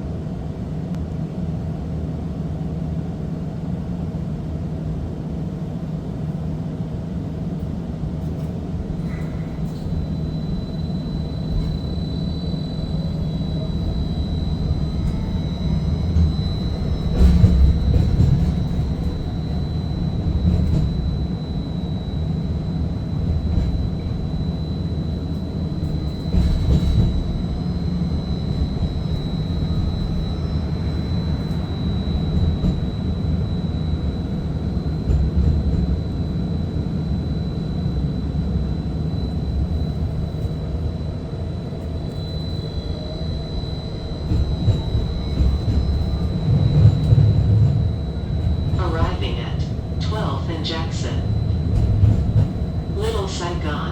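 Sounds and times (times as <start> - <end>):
streetcar rumble: 0.0 - 53.9
high whine: 8.9 - 53.9.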